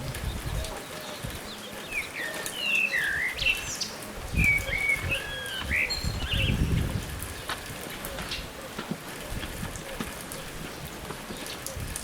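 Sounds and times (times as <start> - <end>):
steady outdoor hiss: 0.0 - 12.0
songbird whistling: 1.9 - 3.9, 4.5 - 6.7.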